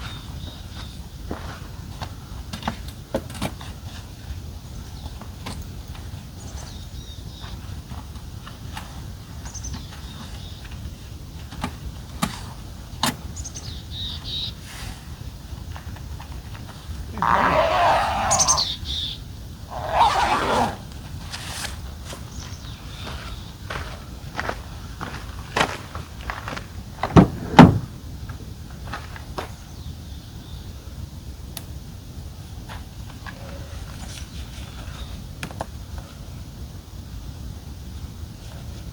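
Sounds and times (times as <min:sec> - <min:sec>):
bird chirping: 0:17.1 - 0:20.8
dull heavy thumps: 0:27.0 - 0:28.0.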